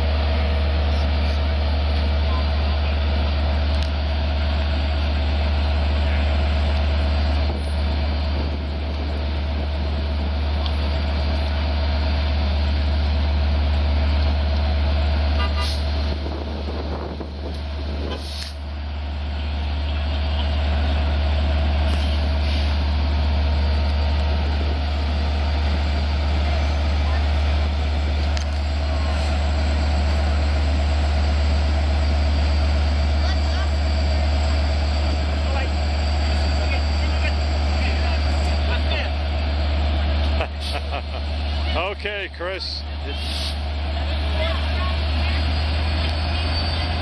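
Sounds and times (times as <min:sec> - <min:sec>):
diesel locomotive idling: 0:00.0 - 0:47.0
short hisses: 0:18.1 - 0:18.6, 0:43.1 - 0:43.6.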